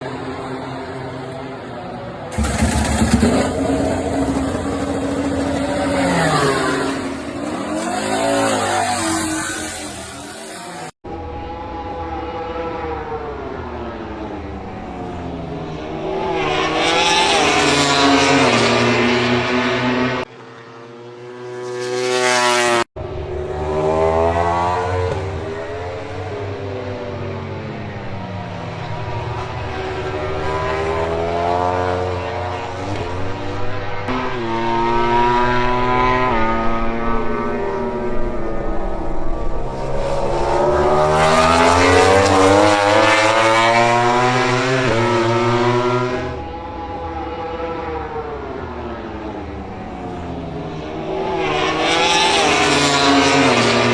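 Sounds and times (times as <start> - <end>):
motorcycle passing by: 0.0 - 53.9
race bike engines revving: 0.3 - 11.0, 28.5 - 53.9.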